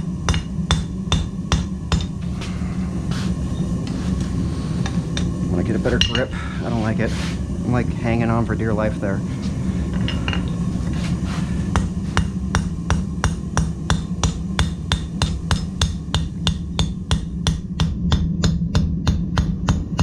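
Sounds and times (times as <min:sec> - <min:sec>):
hammer striking steel on anvil: 0:00.0 - 0:02.2, 0:04.8 - 0:06.4, 0:10.0 - 0:10.6, 0:11.7 - 0:20.0.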